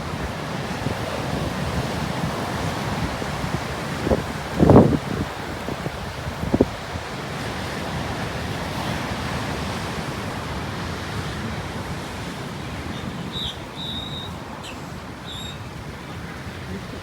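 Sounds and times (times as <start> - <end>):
ocean surf washing onto beach: 0.0 - 17.0
wind rumbling on microphone: 0.0 - 17.0.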